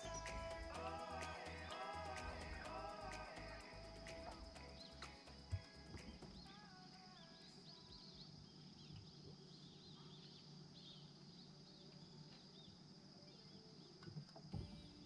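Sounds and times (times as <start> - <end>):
low hum: 0.0 - 6.5
faint bird chirps: 0.0 - 15.0.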